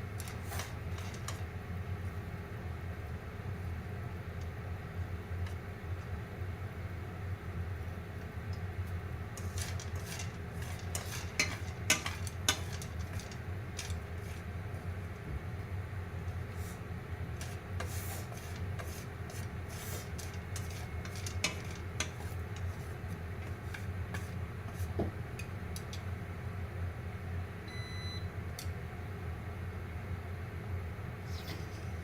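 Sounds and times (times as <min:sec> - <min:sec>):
microwave oven humming: 0:00.0 - 0:32.0
popcorn popping: 0:09.4 - 0:14.5, 0:17.4 - 0:25.0
short beep: 0:27.7 - 0:28.3.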